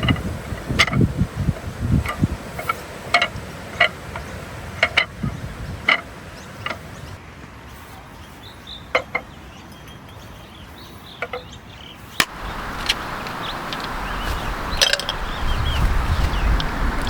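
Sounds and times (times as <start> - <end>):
steady hiss: 0.0 - 7.2, 12.2 - 17.0.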